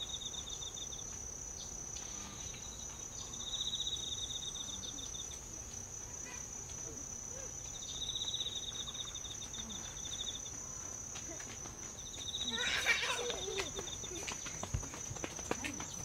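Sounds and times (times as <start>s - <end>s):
insect high-pitched drone: 0.0s - 11.0s.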